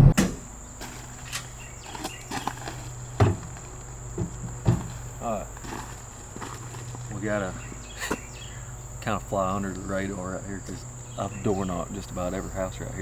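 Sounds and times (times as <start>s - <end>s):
knocks and steps: 0.0s - 8.3s
crickets droning: 0.0s - 13.0s.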